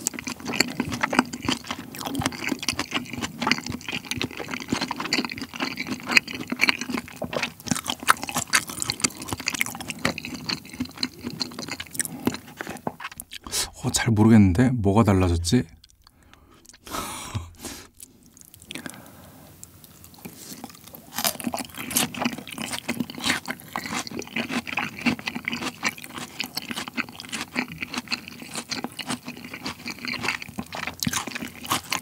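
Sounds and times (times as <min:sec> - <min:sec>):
wet chewing with soft crunches: 0:00.0 - 0:13.6, 0:17.8 - 0:32.0.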